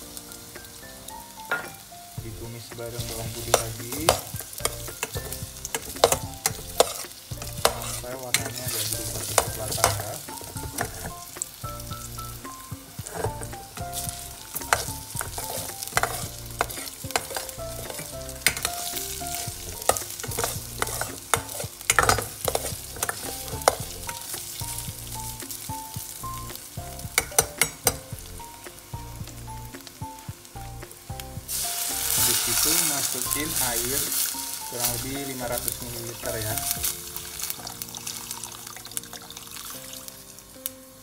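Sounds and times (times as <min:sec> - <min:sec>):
light melodic tune with bass: 0:00.0 - 0:39.1
sausage frying in oil: 0:00.0 - 0:41.0
metal utensil scraping a pot: 0:03.0 - 0:11.3, 0:13.0 - 0:24.4.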